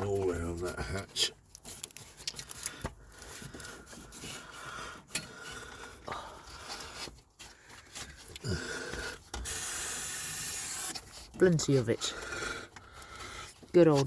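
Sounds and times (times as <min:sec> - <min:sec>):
scrubbing a grimy part: 0:00.0 - 0:14.0
degreaser spray hissing: 0:09.4 - 0:11.0.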